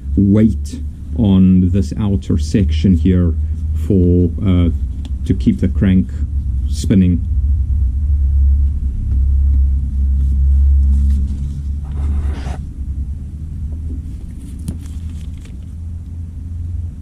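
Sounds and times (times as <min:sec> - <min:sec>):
scraping: 0:10.3 - 0:12.7.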